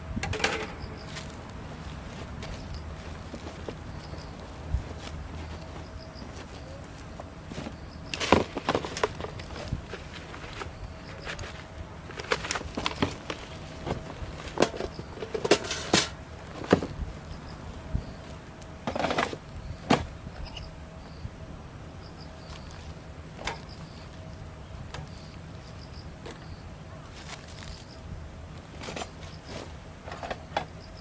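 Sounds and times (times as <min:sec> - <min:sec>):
objects knocking and clacking: 0:00.2 - 0:01.4
rustling scrapes: 0:00.2 - 0:19.5.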